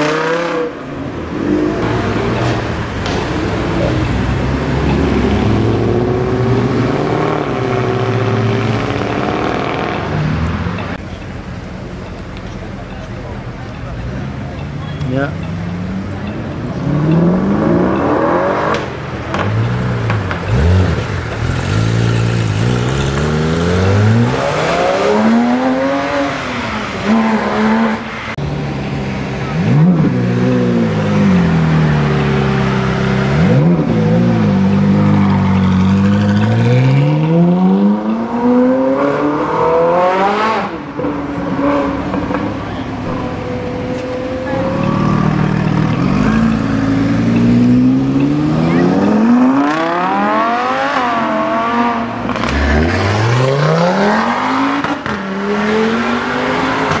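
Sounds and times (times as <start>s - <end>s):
car engines accelerating past: 15.4s - 57.0s.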